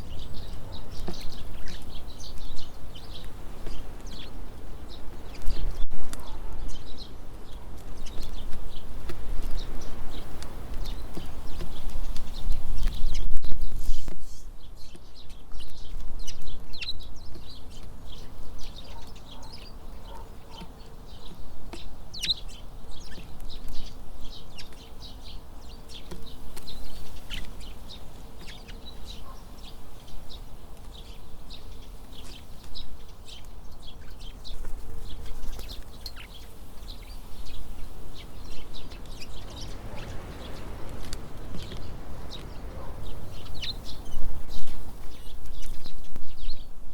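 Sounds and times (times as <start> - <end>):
songbirds chirping: 0.0 - 46.9
wind rumbling on microphone: 0.0 - 46.9.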